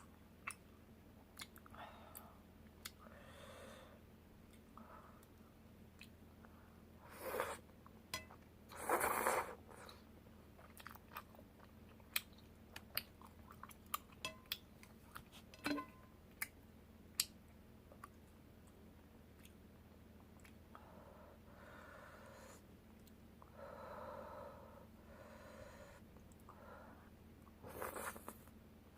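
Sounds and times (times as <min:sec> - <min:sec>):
person chewing food: 0:08.2 - 0:15.5, 0:20.2 - 0:20.6.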